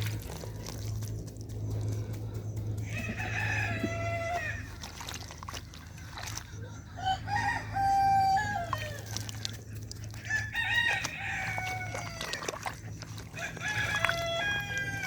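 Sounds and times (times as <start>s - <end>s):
steady low hum: 0.0s - 15.0s
rooster crowing: 2.8s - 4.9s, 6.9s - 9.3s, 10.2s - 12.5s, 13.4s - 15.0s.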